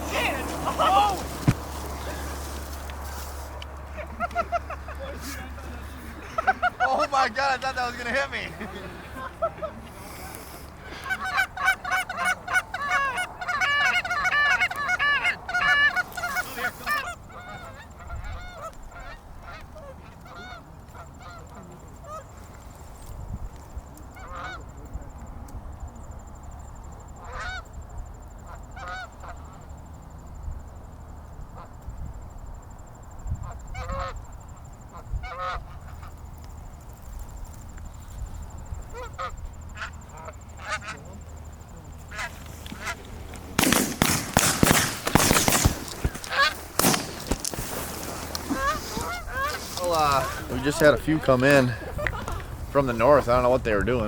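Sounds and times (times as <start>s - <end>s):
geese honking: 0.0s - 22.4s, 24.1s - 24.7s, 27.1s - 29.7s, 33.4s - 36.4s, 38.8s - 54.0s
loud shotgun shots: 43.6s - 47.6s.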